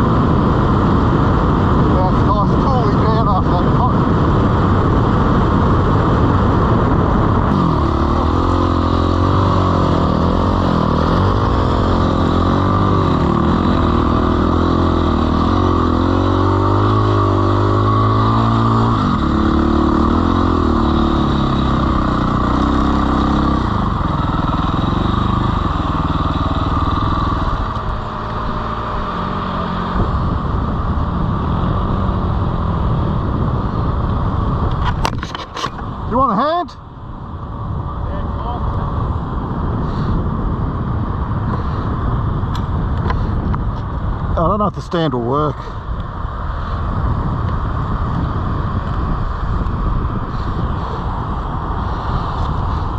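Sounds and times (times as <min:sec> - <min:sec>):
steady rushing noise: 0:00.0 - 0:52.9
dirt bike engine revving: 0:07.4 - 0:30.1.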